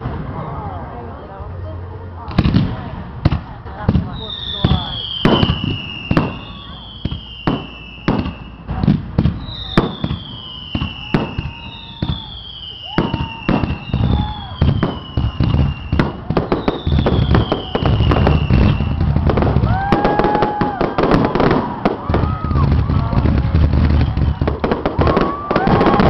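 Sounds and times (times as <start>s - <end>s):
fireworks bangs and booms: 2.2s - 26.0s
fireworks whistles falling in pitch: 4.1s - 26.0s.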